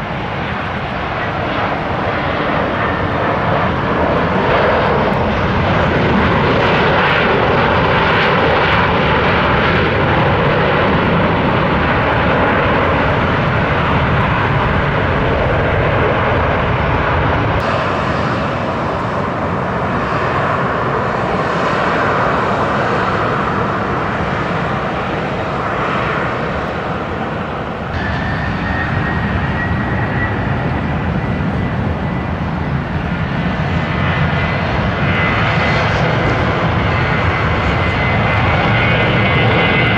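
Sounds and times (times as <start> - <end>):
airliner engines roaring: 0.0 - 39.9
thin engine whine: 23.4 - 39.9.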